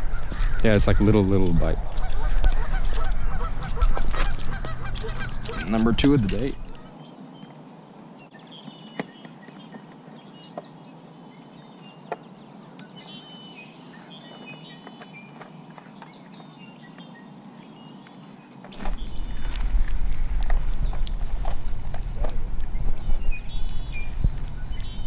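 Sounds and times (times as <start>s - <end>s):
small birds chirping: 0.0s - 25.0s
low rumble: 18.8s - 25.0s.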